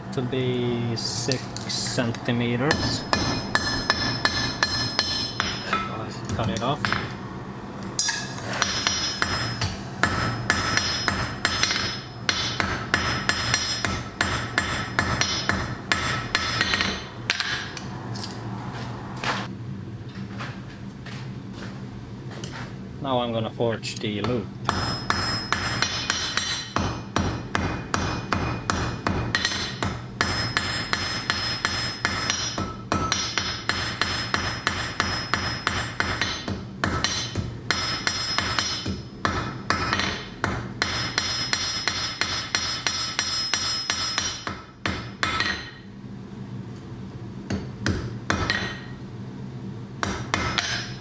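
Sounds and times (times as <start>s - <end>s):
hammer striking iron on anvil: 2.7s - 7.2s, 8.0s - 17.9s, 24.2s - 45.8s, 47.5s - 49.0s, 50.0s - 51.0s.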